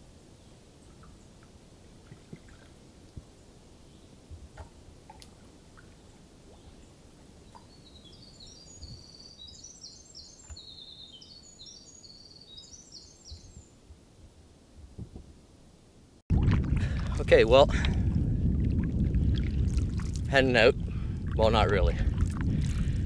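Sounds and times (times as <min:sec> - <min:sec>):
songbird singing: 0:00.0 - 0:13.8
low background rumble: 0:16.3 - 0:23.0.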